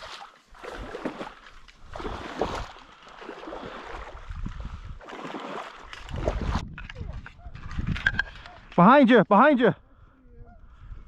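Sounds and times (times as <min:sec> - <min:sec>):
water sloshing and splashing: 0:00.0 - 0:08.5.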